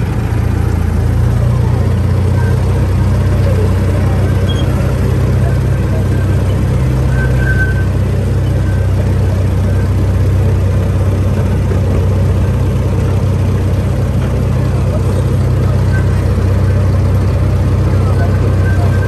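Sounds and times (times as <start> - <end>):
low engine drone: 0.0 - 19.0
small train running on track: 0.0 - 19.0.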